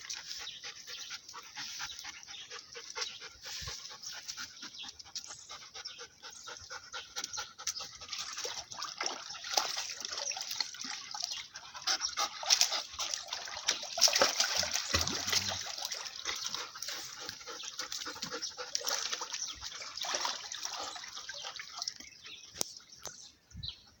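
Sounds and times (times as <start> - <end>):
dogs vocalizing: 0.0 - 22.5
dogs splashing in water: 0.0 - 22.6.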